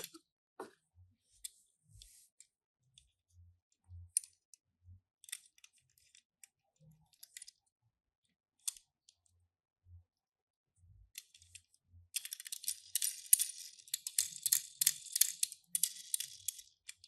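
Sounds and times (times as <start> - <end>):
toy cars clicking and tapping: 5.2 - 7.6, 8.6 - 9.2, 11.2 - 17.0.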